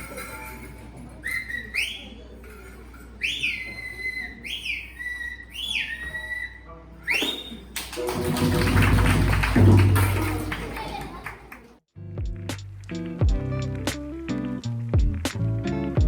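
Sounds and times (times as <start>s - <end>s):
animal whistled calls: 1.2s - 2.3s, 3.2s - 7.8s.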